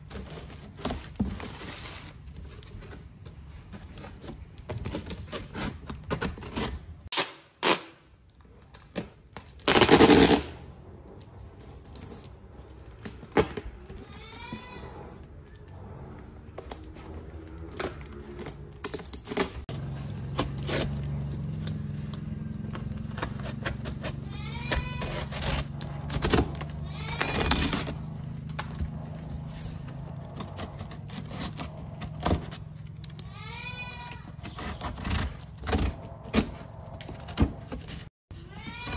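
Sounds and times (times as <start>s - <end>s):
cardboard tearing rasp: 3.7s - 8.0s, 9.6s - 10.6s, 17.9s - 38.1s
young animal crying: 13.9s - 15.8s, 24.1s - 28.2s, 33.0s - 34.9s, 38.4s - 38.9s
utility knife cutting cardboard: 22.7s - 28.2s, 29.4s - 32.8s, 34.2s - 38.1s.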